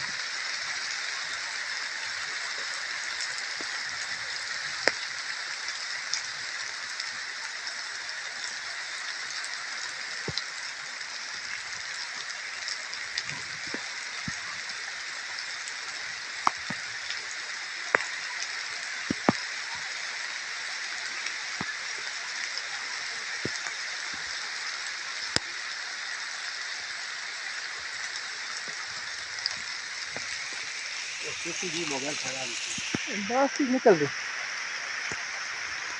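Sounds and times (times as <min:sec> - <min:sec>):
steady rain hiss: 0:00.0 - 0:35.9
raindrop taps: 0:02.5 - 0:05.1, 0:13.2 - 0:14.6, 0:16.4 - 0:17.2, 0:17.8 - 0:18.2, 0:19.0 - 0:19.5, 0:28.6 - 0:34.1.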